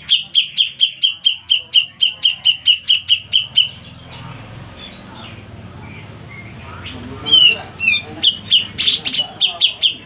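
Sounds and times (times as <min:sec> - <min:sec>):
bird calling sharp notes: 0:00.0 - 0:04.2, 0:04.8 - 0:10.0.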